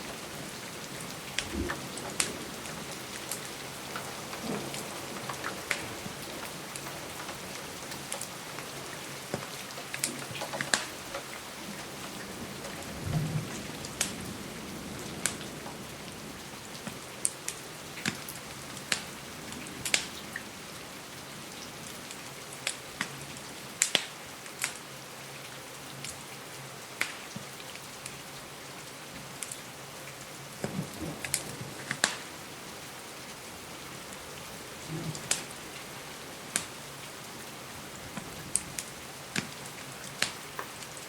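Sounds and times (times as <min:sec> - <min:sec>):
wood fire crackling: 0:00.0 - 0:12.9, 0:16.8 - 0:19.2, 0:27.0 - 0:28.2, 0:29.2 - 0:41.0
steady rain hissing: 0:00.0 - 0:41.0.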